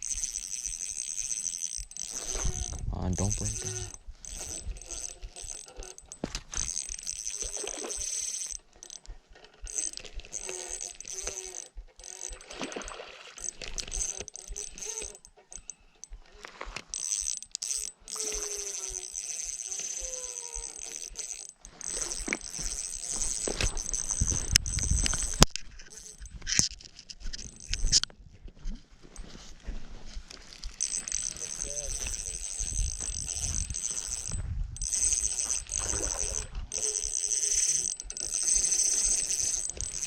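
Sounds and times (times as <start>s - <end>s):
fishing reel clicking: 0.0s - 28.1s, 30.3s - 40.0s.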